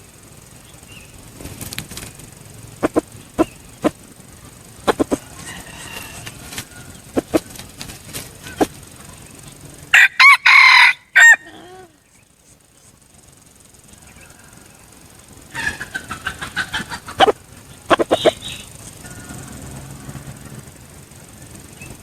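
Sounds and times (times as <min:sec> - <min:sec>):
quick short clucking: 0:02.8 - 0:04.0, 0:04.8 - 0:08.8, 0:15.5 - 0:19.4
rooster crowing: 0:04.9 - 0:07.5, 0:09.9 - 0:12.0, 0:13.9 - 0:20.8.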